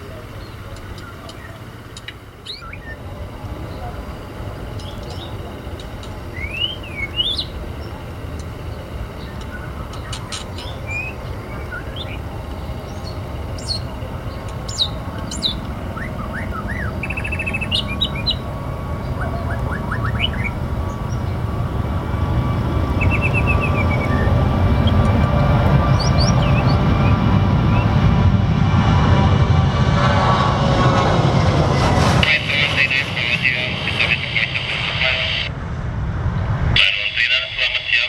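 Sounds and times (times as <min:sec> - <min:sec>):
small birds chirping: 0:00.0 - 0:28.1
low rumble: 0:03.0 - 0:37.7.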